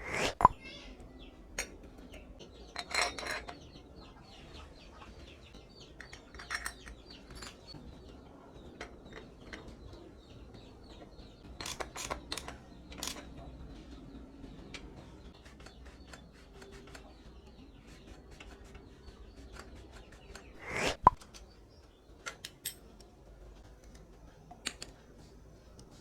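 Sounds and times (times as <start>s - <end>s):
metal tools clinking: 2.7s - 3.8s, 6.0s - 7.7s.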